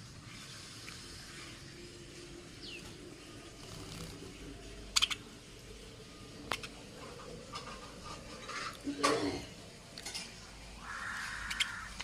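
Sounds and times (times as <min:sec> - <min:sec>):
bird chirp: 0:02.5 - 0:05.4, 0:10.8 - 0:12.0.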